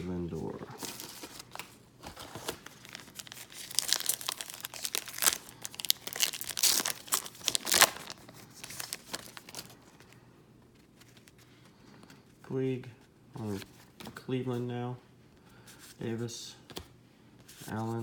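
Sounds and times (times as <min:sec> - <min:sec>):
wrapper tearing and crinkling: 0:00.8 - 0:09.8.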